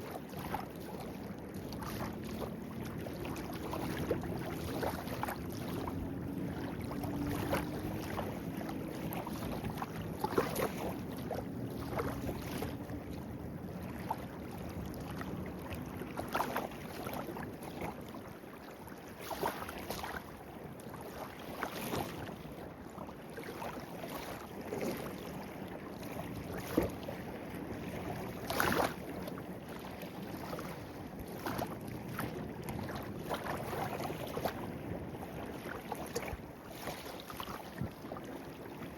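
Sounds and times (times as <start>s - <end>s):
water splashing: 1.6s - 17.8s, 23.6s - 38.4s.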